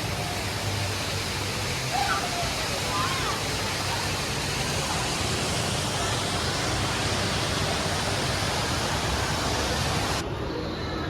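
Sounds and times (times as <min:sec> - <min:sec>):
indoor waterfall rushing: 0:00.0 - 0:10.8.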